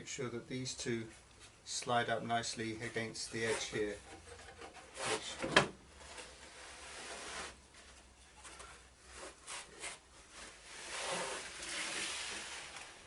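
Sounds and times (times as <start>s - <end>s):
wooden sled sliding on table saw: 6.2s - 7.6s, 9.2s - 13.0s.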